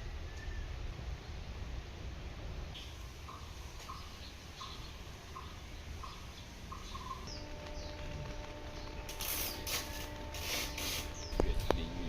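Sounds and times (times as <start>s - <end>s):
bursts of hiss: 2.7s - 12.0s
bird calling: 2.8s - 12.0s
higher falling bird chirps: 2.8s - 12.0s.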